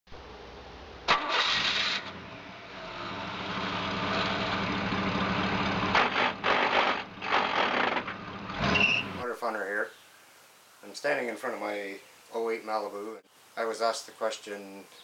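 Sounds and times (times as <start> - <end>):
car engine idling: 1.1 - 9.2.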